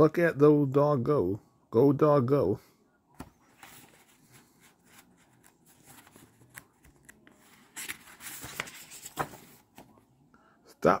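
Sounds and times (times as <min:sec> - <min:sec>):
book page turning: 0:03.2 - 0:10.1
paper rustling: 0:03.2 - 0:10.1.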